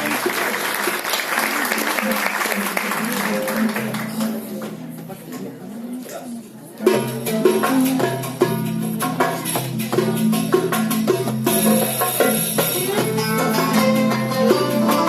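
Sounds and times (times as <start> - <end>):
struck percussion rhythm: 6.8 - 15.0
pitched instruments playing: 7.1 - 15.0.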